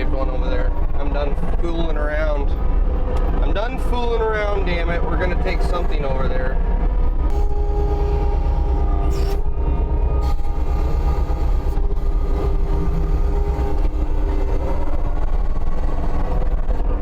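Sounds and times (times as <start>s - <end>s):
diesel engine running hard: 0.0s - 17.0s
hydraulic whine: 7.1s - 17.0s.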